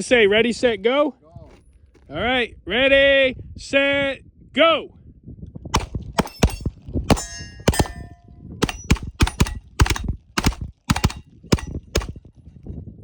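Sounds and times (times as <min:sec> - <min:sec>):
pistol shots: 0:05.8 - 0:12.2
steel plate ringing ping: 0:06.2 - 0:09.7.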